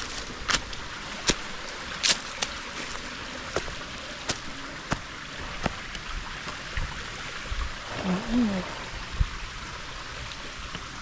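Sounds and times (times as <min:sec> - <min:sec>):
footsteps on a trail: 0:00.0 - 0:06.6
stream water running: 0:00.0 - 0:11.0.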